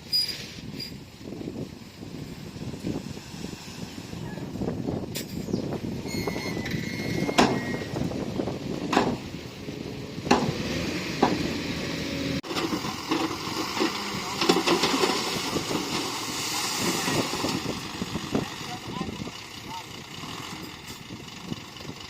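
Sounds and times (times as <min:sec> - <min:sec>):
bulldozer diesel engine under load: 0:00.0 - 0:22.0
high squeal: 0:05.4 - 0:08.0.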